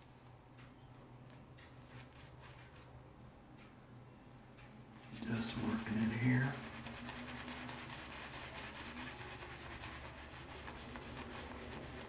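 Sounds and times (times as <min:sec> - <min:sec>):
shaving brush lathering in foam: 0:05.1 - 0:12.0.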